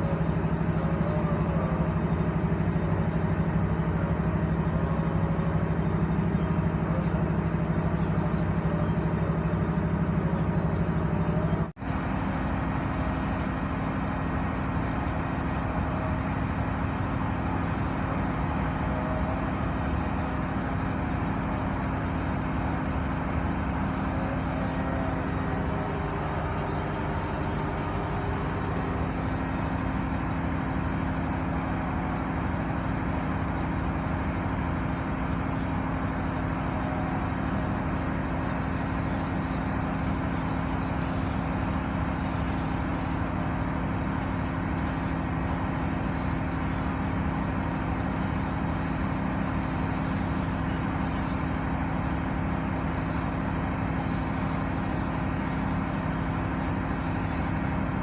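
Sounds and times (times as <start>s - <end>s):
low mechanical drone: 0.0s - 58.0s.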